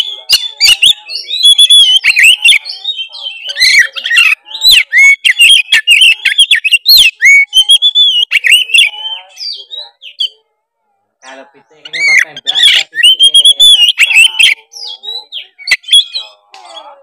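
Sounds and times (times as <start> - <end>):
bird singing varied whistles: 0.0 - 10.3.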